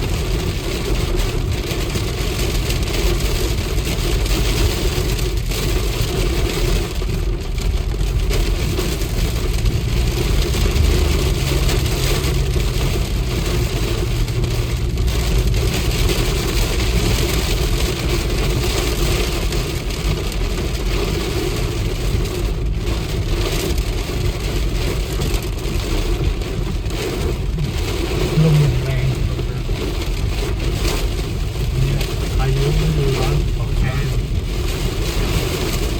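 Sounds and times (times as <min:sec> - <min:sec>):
vehicle engine running: 0:00.0 - 0:35.9
heavy rain hissing: 0:08.1 - 0:35.9.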